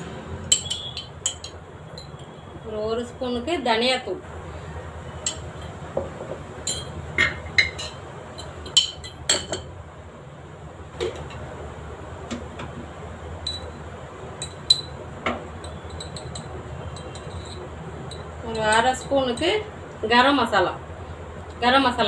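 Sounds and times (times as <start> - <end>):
metal spoon clinking: 0.5 - 2.3, 5.2 - 5.7, 6.6 - 9.7, 13.4 - 13.8, 14.4 - 15.0, 15.6 - 19.6.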